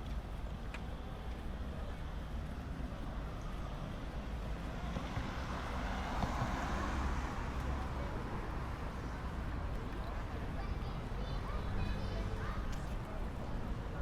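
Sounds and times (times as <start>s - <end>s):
city traffic rumble: 0.0s - 14.0s
passing vehicle: 1.0s - 14.0s
faint voices of people: 7.1s - 14.0s.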